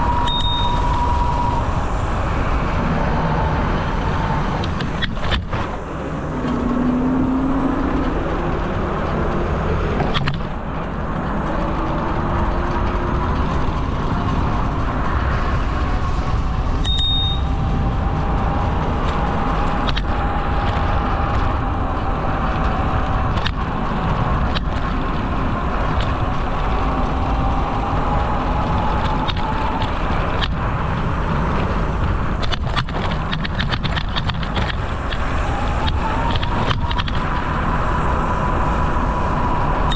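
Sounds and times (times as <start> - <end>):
bicycle tyre rumble: 0.0 - 39.9
wind rush: 0.0 - 39.9
brief high ping: 0.3 - 0.9, 16.8 - 17.5.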